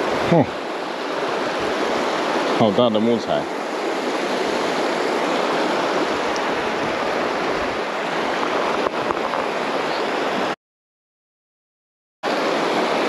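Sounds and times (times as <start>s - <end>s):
river water rushing over rocks: 0.0s - 10.6s, 12.3s - 13.0s.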